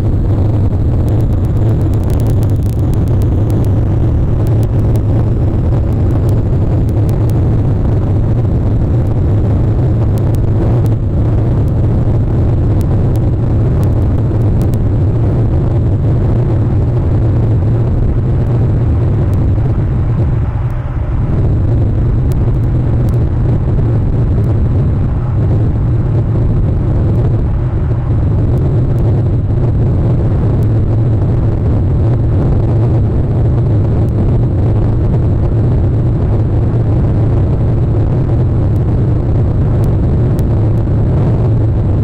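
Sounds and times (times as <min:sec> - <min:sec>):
loud steady low rumble: 0:00.0 - 0:42.0
faint clicks: 0:01.0 - 0:07.5.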